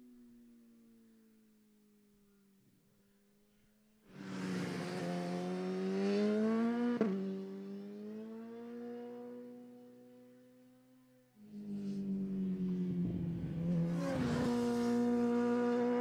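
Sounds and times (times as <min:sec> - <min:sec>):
motorcycle engine revving: 0:04.2 - 0:09.2, 0:11.4 - 0:16.0.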